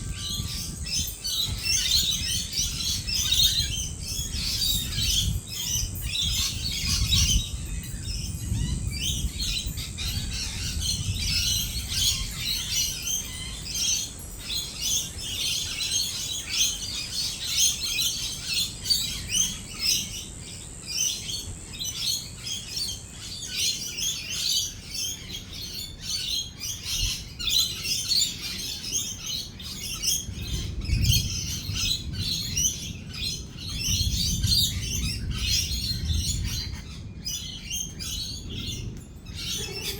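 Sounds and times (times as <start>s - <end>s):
lorikeets chattering and screeching: 0.0s - 39.9s
distant rolling thunder: 30.2s - 39.9s.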